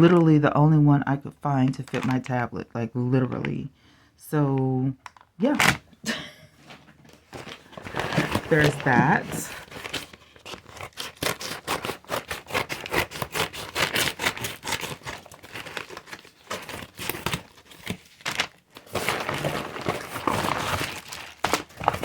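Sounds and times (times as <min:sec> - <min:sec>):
packaging crinkling and rustling: 0:01.7 - 0:02.3, 0:06.6 - 0:22.0.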